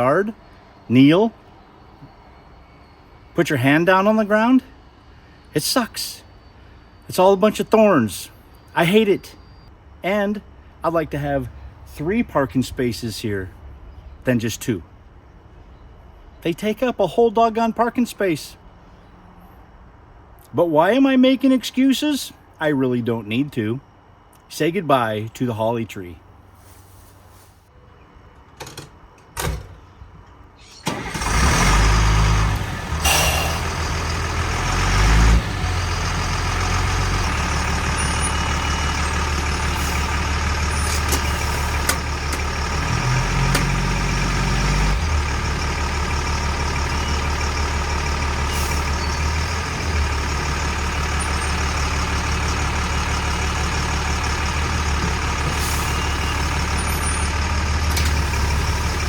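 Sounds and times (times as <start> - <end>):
diesel truck engine running: 30.6 - 59.0.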